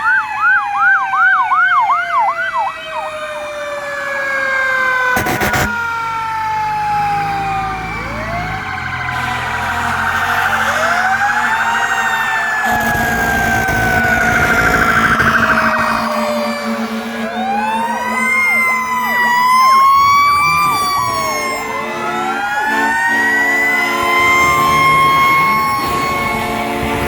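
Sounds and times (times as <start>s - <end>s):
electronic siren yelp: 0.0s - 27.0s
fire truck sirens wailing: 0.0s - 27.0s
sharp burst of noise: 5.1s - 5.8s, 12.6s - 17.3s.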